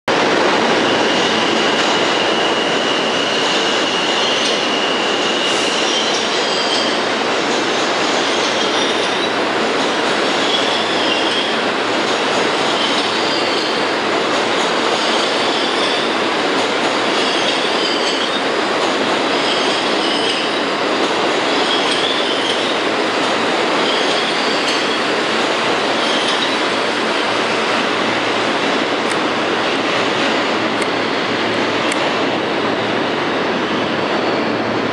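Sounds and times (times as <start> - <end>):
subway train rumble: 0.1 - 34.9
wheel squeal: 0.8 - 7.0, 12.6 - 13.9, 17.2 - 18.4, 19.3 - 20.6, 26.0 - 26.7.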